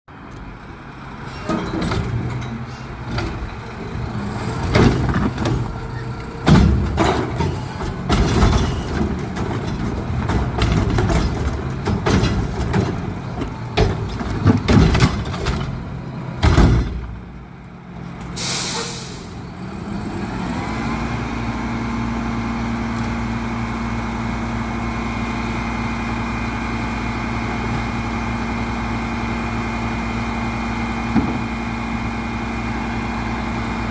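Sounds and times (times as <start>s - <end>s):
diesel engine running with whine: 2.2s - 33.9s
air brake hiss: 18.4s - 19.4s.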